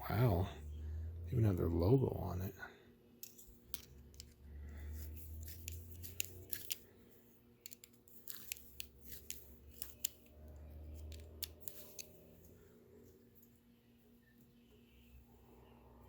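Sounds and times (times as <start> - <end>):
hand tools clicking on parts: 5.0 - 6.8.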